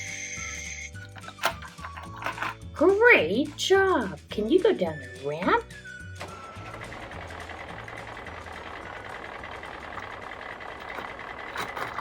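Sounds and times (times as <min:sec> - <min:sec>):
toy truck wheels rolling: 0:00.0 - 0:02.7, 0:06.2 - 0:12.0.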